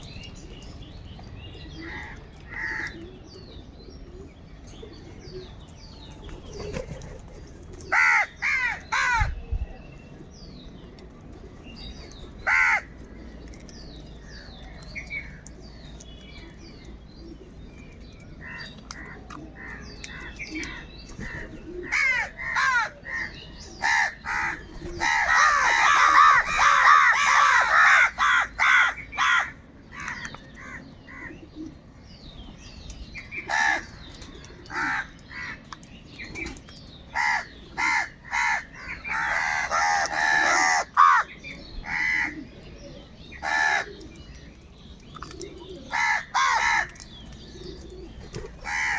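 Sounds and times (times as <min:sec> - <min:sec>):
crows cawing: 0:01.8 - 0:03.0, 0:07.9 - 0:09.3, 0:12.4 - 0:12.9, 0:21.9 - 0:31.3, 0:33.5 - 0:33.9, 0:34.7 - 0:35.6, 0:37.2 - 0:42.4, 0:43.4 - 0:44.0, 0:45.9 - 0:47.0, 0:48.6 - 0:48.9.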